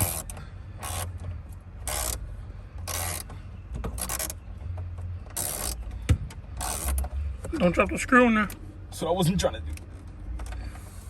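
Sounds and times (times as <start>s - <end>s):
ratchet wrench clicking: 0.0s - 1.2s, 1.8s - 2.2s, 2.8s - 3.3s, 5.3s - 5.8s, 6.6s - 7.1s.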